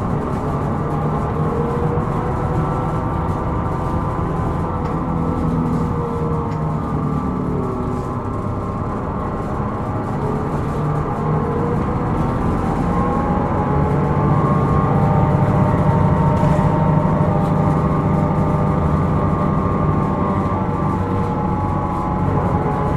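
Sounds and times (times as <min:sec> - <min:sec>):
bus diesel engine running: 0:00.0 - 0:22.9.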